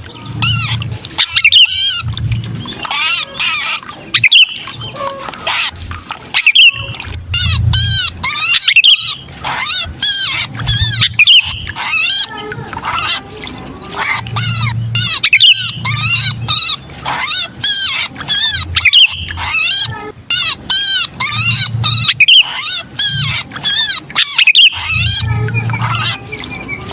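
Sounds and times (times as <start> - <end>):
low rumble: 0.0 - 22.2
bulbuls giving harsh distress calls: 0.0 - 26.9.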